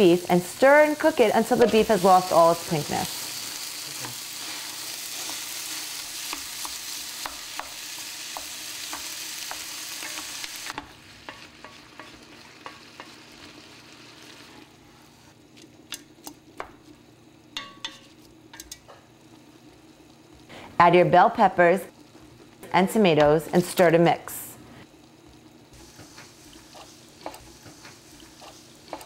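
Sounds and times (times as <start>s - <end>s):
meat and onions sizzling: 0.0s - 15.4s, 24.9s - 29.0s.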